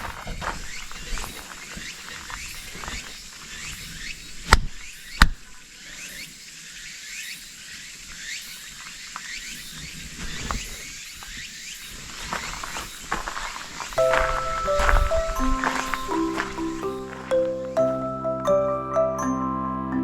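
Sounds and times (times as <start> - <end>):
high-pitched hiss: 11.9 - 20.0.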